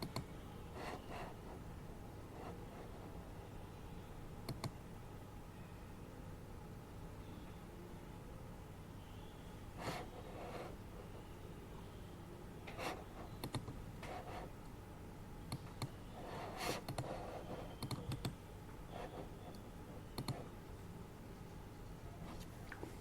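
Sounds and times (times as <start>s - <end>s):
computer keyboard keystrokes: 0.0s - 0.3s, 4.5s - 4.8s, 13.4s - 13.8s, 16.8s - 17.1s, 17.8s - 18.4s, 20.2s - 20.4s
low background hum: 0.0s - 23.0s.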